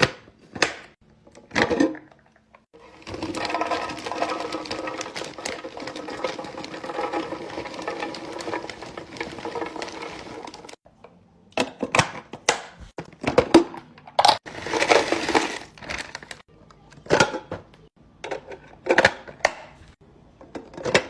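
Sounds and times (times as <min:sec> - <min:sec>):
items knocking and clinking: 0:00.0 - 0:10.8, 0:11.6 - 0:21.0
items rattling and clicking: 0:00.5 - 0:10.8, 0:11.6 - 0:19.8.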